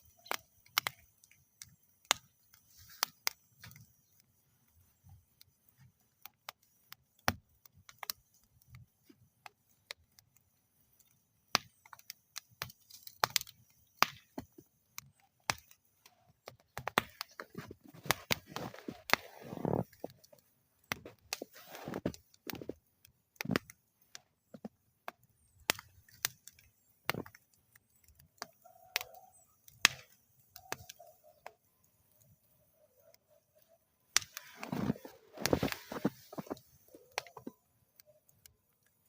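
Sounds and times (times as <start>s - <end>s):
wood fire crackling and popping: 0.0s - 39.0s.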